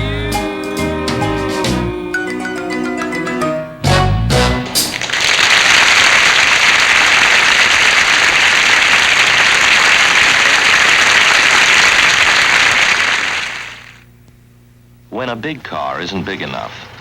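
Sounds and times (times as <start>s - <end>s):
studio audience applauding: 4.8s - 14.0s.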